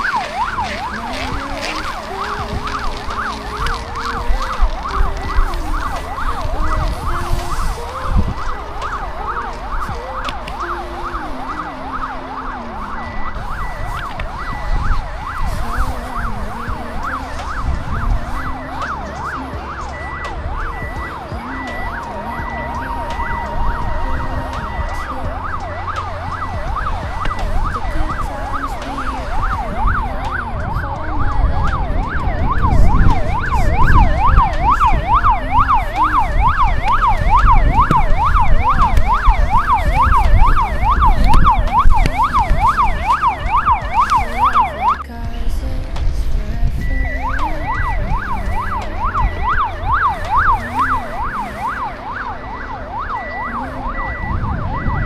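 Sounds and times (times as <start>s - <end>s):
fast siren-like warble: 0.0s - 45.0s, 46.8s - 55.0s
low shifting notes: 0.0s - 55.0s.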